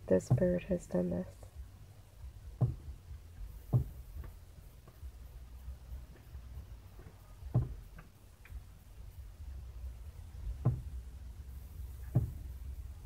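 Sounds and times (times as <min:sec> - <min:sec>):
bird knocking on car mirror: 0:02.6 - 0:02.9, 0:03.6 - 0:04.4, 0:07.5 - 0:08.1, 0:10.6 - 0:11.0, 0:12.1 - 0:12.5.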